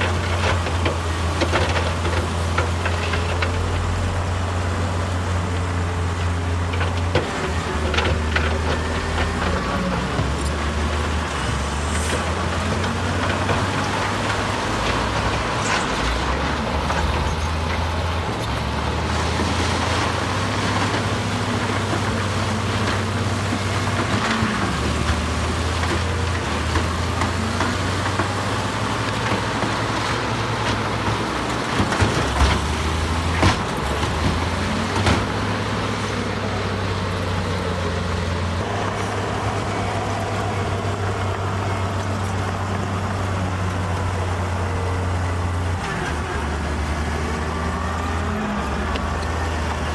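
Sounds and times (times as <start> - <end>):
heavy machinery diesel engine: 0.0 - 49.9.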